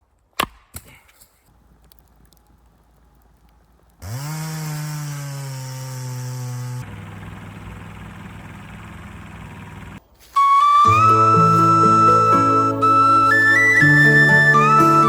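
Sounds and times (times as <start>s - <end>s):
chainsaw engine starting: 4.0s - 10.0s.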